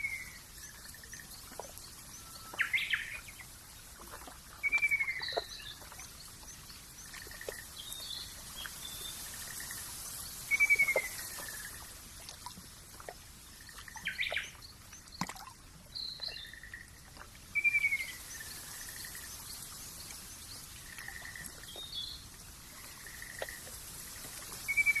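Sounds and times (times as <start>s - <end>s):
steady high hiss: 0.0s - 14.9s, 17.5s - 25.0s
bird whistles and chirps: 10.5s - 11.6s, 17.6s - 18.2s, 24.7s - 25.0s.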